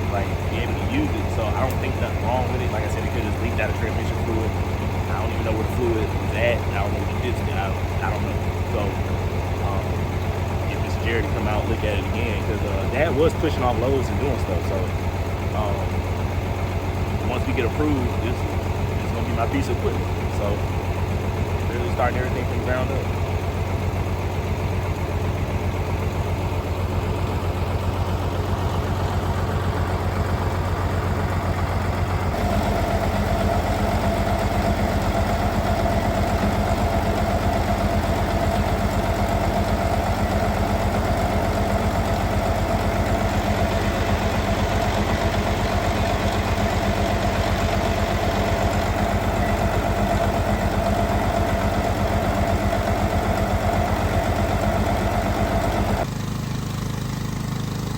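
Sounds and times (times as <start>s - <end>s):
steady whine: 0.0s - 16.0s
tractor engine idling: 0.0s - 57.9s.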